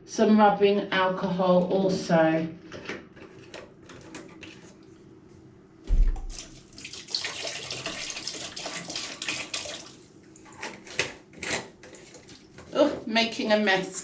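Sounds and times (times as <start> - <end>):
thump: 5.9 - 6.4
liquid pouring into a bucket: 5.9 - 10.1.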